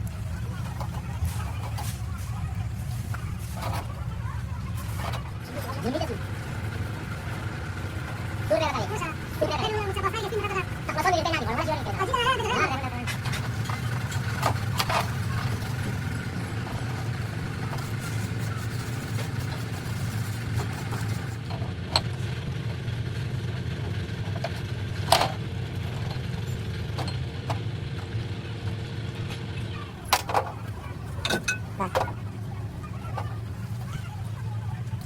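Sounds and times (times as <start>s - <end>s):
motor running with low drone: 0.0s - 35.0s.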